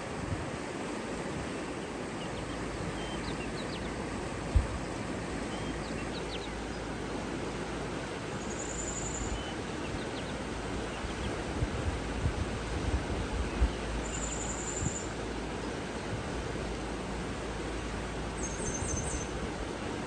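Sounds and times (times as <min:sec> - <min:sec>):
rush of wind or water: 0:00.0 - 0:20.0
bird chirps: 0:14.0 - 0:15.1, 0:18.4 - 0:19.3.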